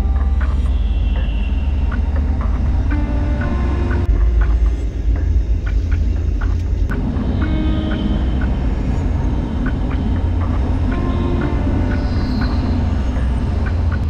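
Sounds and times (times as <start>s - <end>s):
deep exhaust rumble: 0.0s - 14.0s.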